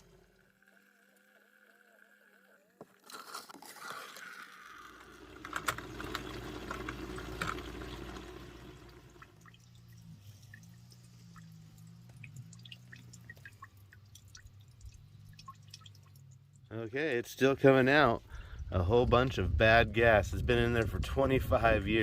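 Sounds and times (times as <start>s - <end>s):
gasoline pouring into a bucket: 2.8s - 16.0s
liquid trickling and dripping: 4.0s - 16.8s, 18.2s - 18.8s.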